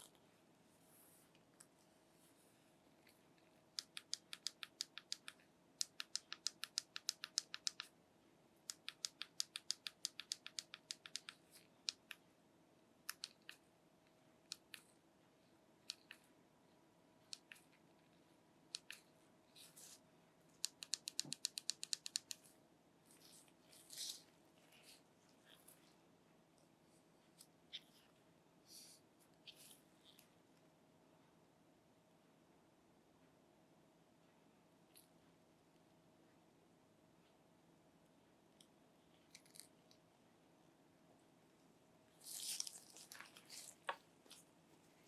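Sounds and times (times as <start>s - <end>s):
touchscreen keyboard typing clicks: 3.7s - 8.0s, 8.6s - 12.2s, 13.1s - 13.6s, 17.3s - 17.7s, 20.6s - 22.4s.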